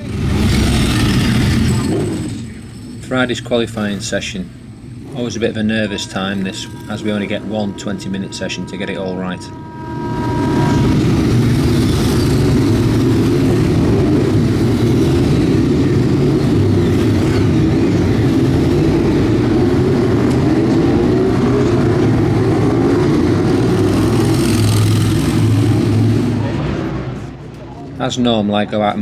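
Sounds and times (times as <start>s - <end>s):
motorcycle engine at high revs: 10.6s - 26.4s.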